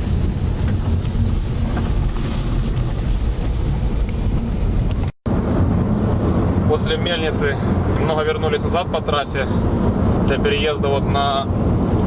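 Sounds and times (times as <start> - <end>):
wind on microphone: 0.0 - 6.7
car road rumble: 0.0 - 12.0.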